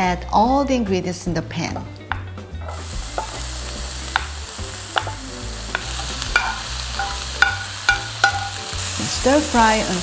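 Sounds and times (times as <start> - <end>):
vegetables sizzling in hot oil: 2.6 - 10.0.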